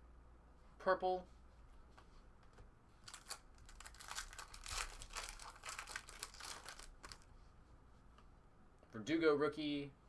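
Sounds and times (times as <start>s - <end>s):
wrapper crinkling and tearing: 3.0s - 7.3s.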